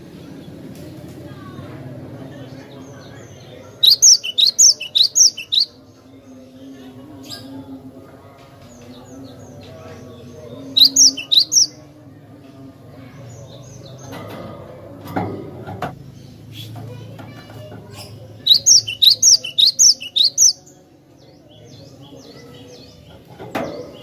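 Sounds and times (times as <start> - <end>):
low background murmur: 0.0 - 24.0
bird singing sharp high chirps: 3.8 - 5.8, 10.7 - 11.8, 18.4 - 20.7.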